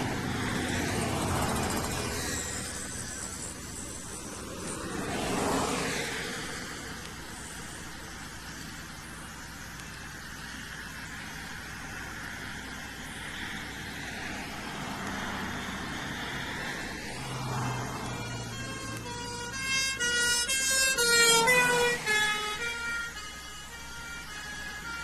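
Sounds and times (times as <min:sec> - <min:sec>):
engine rumble: 0:00.0 - 0:25.0
two-tone siren horn: 0:17.2 - 0:25.0.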